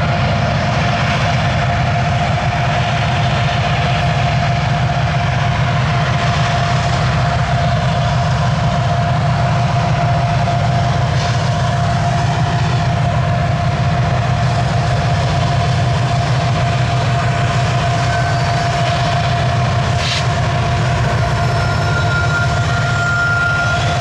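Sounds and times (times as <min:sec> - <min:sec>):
freight train rumbling past: 0:00.0 - 0:24.0
ringing tone: 0:21.4 - 0:24.0.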